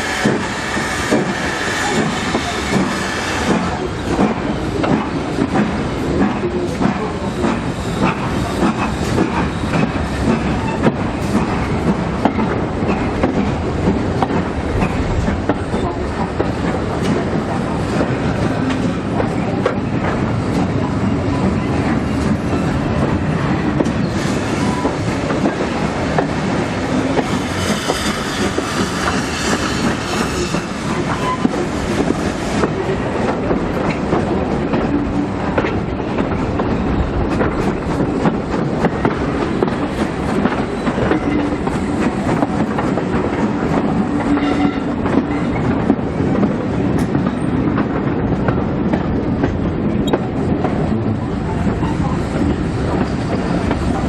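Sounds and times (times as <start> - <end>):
steam hiss: 0.0 - 3.7, 27.0 - 31.1
train carriage rumbling: 0.0 - 54.0.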